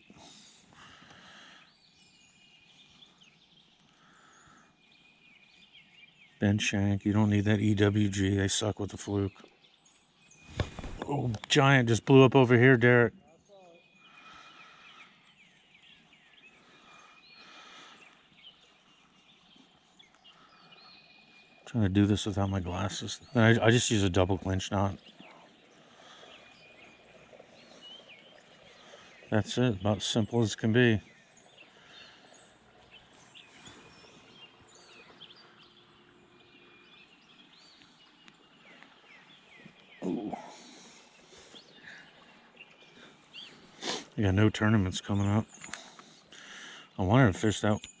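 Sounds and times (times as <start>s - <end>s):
faint birdsong chirps: 0.0s - 48.0s.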